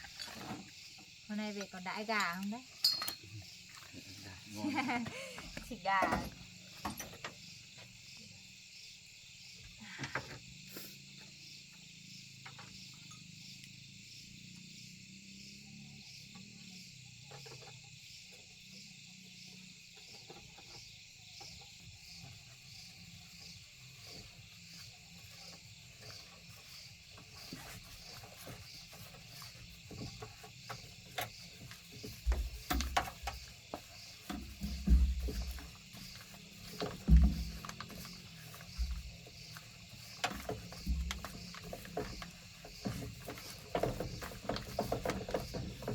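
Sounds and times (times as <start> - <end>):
crickets chirping: 0.0 - 45.9
knocks and clinks: 2.2 - 3.3.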